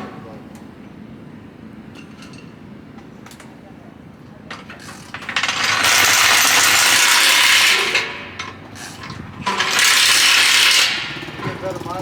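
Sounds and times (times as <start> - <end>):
impact wrench hammering: 4.8 - 12.0.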